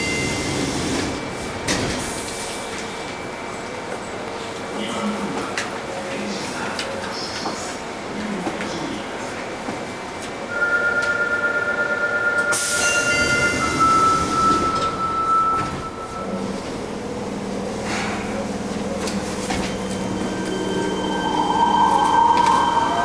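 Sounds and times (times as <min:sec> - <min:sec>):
train rumble on track: 0:00.0 - 0:23.0
wavering high squeal: 0:19.7 - 0:23.0.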